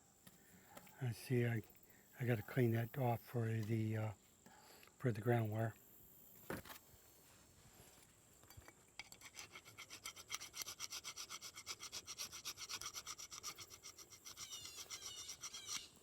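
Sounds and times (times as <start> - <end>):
paint being scraped off metal: 9.0 - 16.0.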